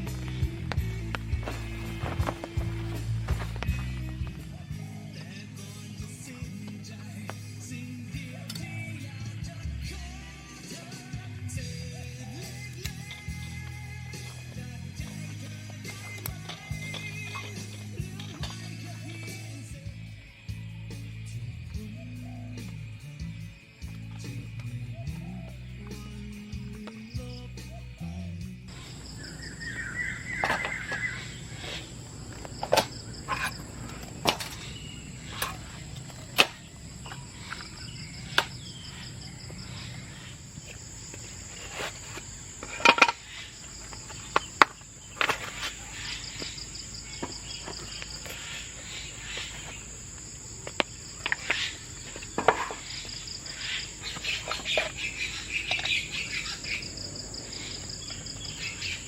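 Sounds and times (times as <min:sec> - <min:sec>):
pulsing cricket-like chirp: 0:00.0 - 0:07.0, 0:11.5 - 0:59.0
insects trilling: 0:00.0 - 0:09.6, 0:10.2 - 0:59.0.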